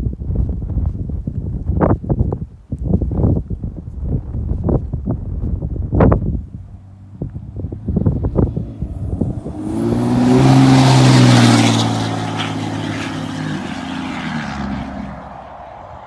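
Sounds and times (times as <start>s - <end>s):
diesel engine revving: 7.0s - 15.9s
high turbo whistle: 8.3s - 16.0s.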